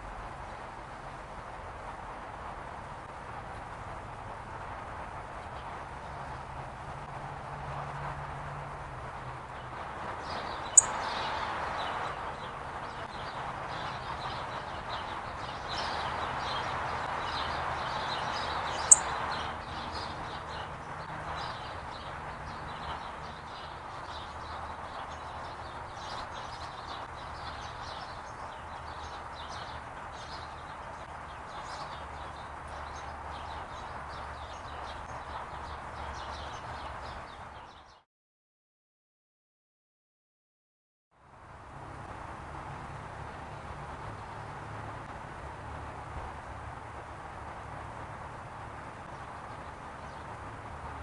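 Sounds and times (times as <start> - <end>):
steady outdoor hiss: 0.0 - 38.0, 41.2 - 51.0
songbird chip notes: 10.7 - 11.1, 18.8 - 19.1.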